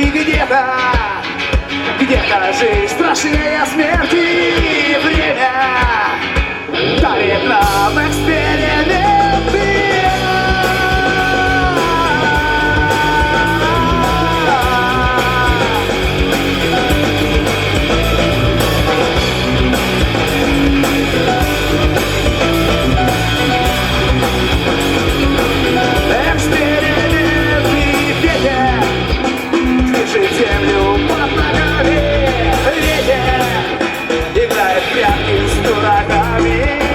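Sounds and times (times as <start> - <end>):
bass guitar: 0.0 - 36.9
drums: 0.0 - 36.9
electric guitar: 0.0 - 36.9.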